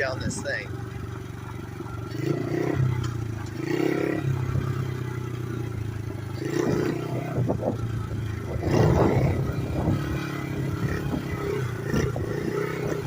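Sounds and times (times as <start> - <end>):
small motorbike engine running: 0.0 - 13.0.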